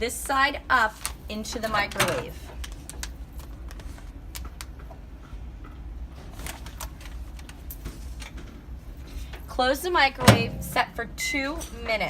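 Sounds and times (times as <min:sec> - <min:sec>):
steady low hum: 0:00.0 - 0:12.0
popcorn bag clicks and rustles: 0:02.4 - 0:04.9, 0:06.2 - 0:08.4.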